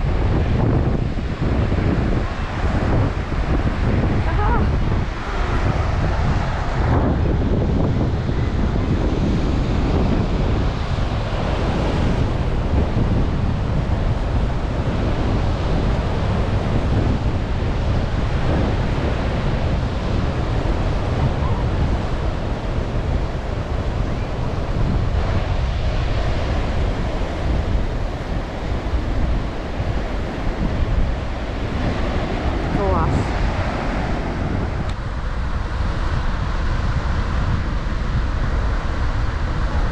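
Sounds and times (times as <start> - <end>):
surf washing onto beach: 0.0 - 39.9
wind blowing across microphone: 0.0 - 39.9.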